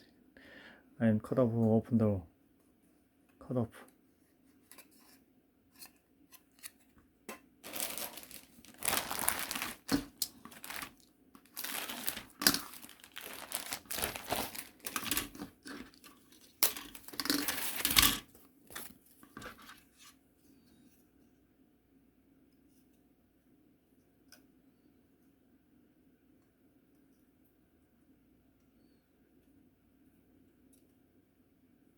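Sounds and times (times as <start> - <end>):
plastic packaging crinkling: 7.6 - 19.6.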